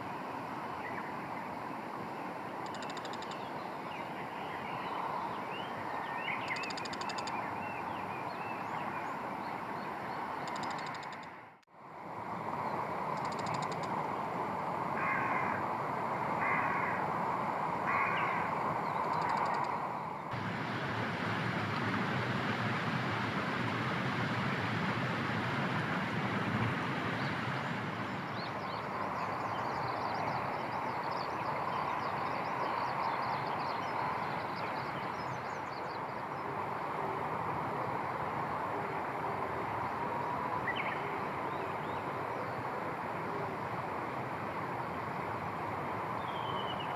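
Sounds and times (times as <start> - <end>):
steady background noise: 0.0 - 46.9
crow cawing: 15.0 - 15.6, 16.4 - 17.1, 17.9 - 18.5.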